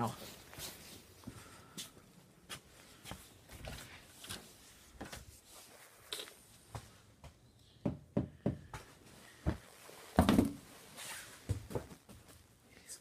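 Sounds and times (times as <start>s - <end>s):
irregular knocks and thumps: 10.2s - 10.6s.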